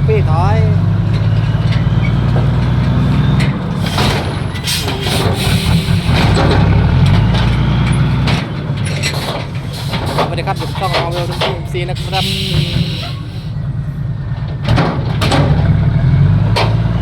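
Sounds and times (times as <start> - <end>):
diesel truck engine droning: 0.0 - 17.0
short hissing bursts: 12.0 - 13.5.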